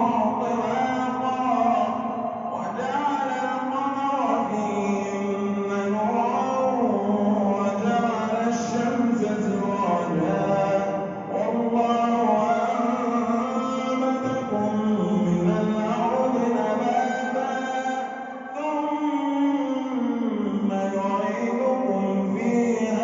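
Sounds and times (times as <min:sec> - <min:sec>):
man chanting melodically: 0:00.0 - 0:23.0.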